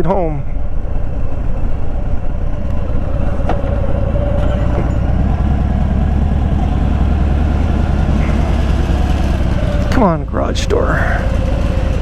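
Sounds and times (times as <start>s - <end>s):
motorcycle engine idling: 5.0s - 12.0s.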